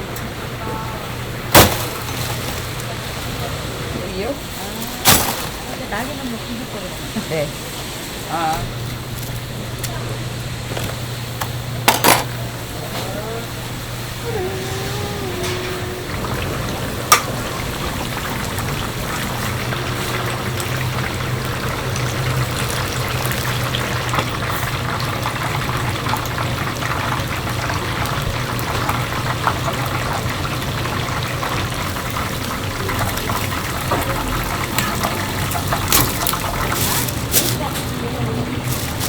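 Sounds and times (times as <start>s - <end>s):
rushing water-like noise: 14.3s - 24.2s.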